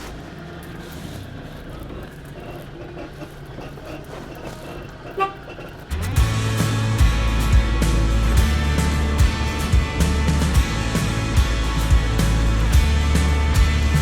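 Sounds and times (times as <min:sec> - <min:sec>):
van engine humming: 0:00.0 - 0:14.0
horn toot: 0:05.1 - 0:05.6
music: 0:05.9 - 0:14.0.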